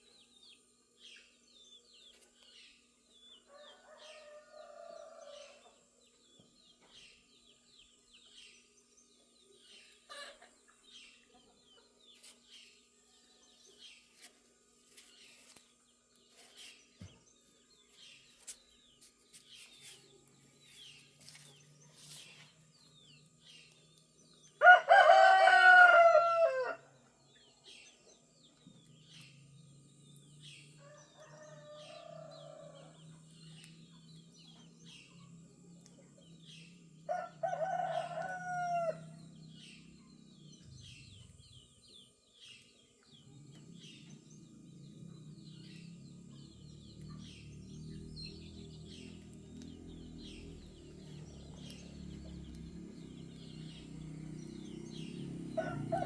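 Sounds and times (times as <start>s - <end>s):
songbirds chirping: 0.0s - 56.0s
rooster crowing: 3.5s - 5.7s, 24.6s - 26.9s, 30.8s - 33.2s, 37.1s - 39.2s, 54.9s - 56.0s
distant rooster crowing: 3.5s - 5.8s, 24.6s - 26.9s, 30.8s - 33.3s, 37.0s - 39.8s, 52.9s - 56.0s.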